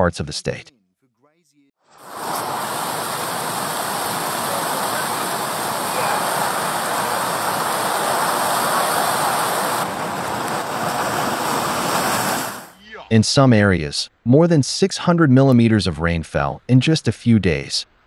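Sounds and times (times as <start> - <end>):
heavy rain falling: 2.0 - 12.7.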